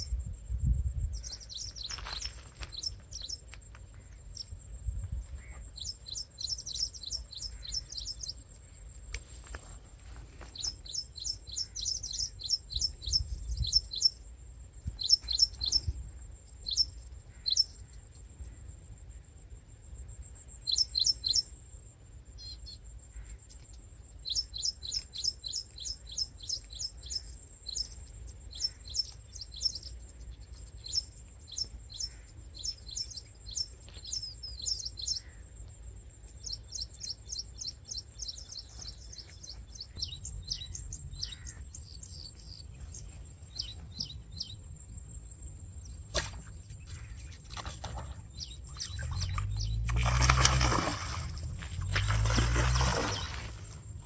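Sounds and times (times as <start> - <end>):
small birds chirping: 0.9 - 18.7, 20.2 - 21.5, 22.3 - 54.0
faint low rumble: 35.2 - 54.0.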